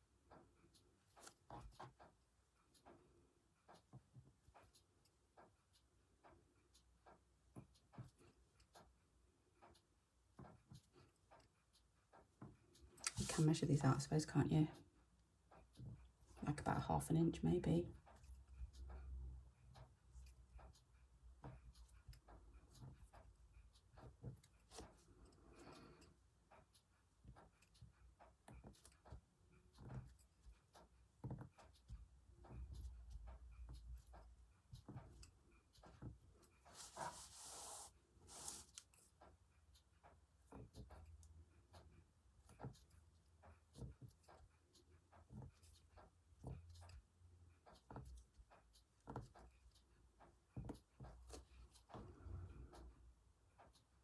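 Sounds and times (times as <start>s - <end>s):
fabric and sewing tools handled: 36.0s - 39.0s.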